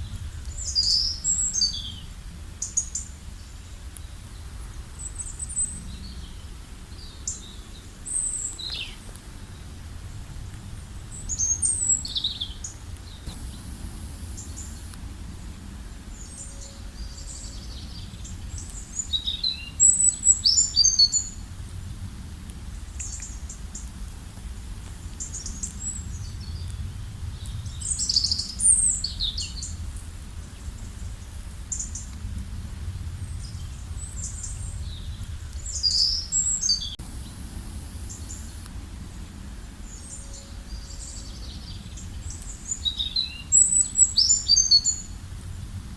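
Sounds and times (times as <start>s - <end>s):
small birds chirping and trilling: 0.0s - 9.8s, 10.8s - 21.4s, 33.0s - 45.2s
steady low rumble: 0.0s - 44.1s, 44.9s - 45.9s.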